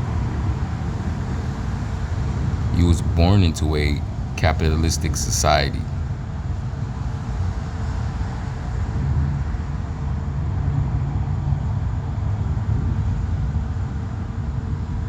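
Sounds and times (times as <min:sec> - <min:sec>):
faint steady hum: 0:00.9 - 0:07.6.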